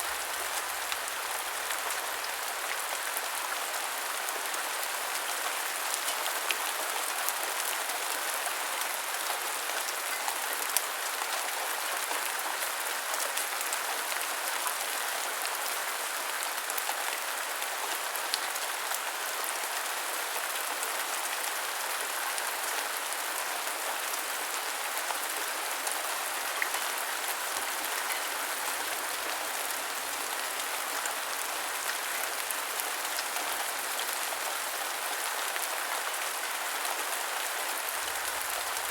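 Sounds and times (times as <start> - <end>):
heavy rain falling: 22.6 - 38.9.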